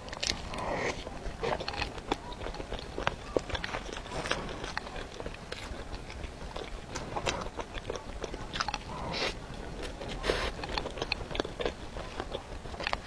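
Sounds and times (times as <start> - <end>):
crackly rustles: 0.0 - 13.0
mouth clicks and smacks: 0.0 - 13.0
person chewing: 0.0 - 13.0.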